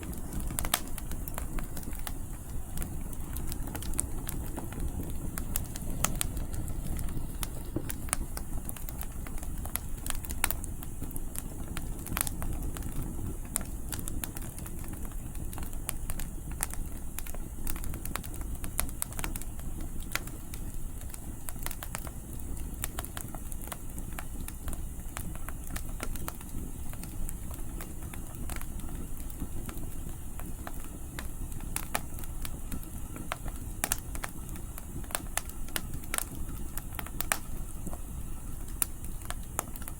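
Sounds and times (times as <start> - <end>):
campfire crackling and popping: 0.0 - 39.9
wind rumble: 3.5 - 9.2.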